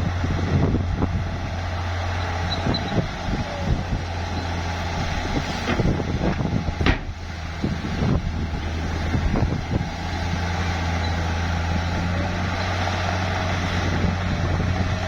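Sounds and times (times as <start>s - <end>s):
bulldozer diesel engine running: 0.0s - 15.0s
short knocks of dirt and rock: 5.2s - 7.2s.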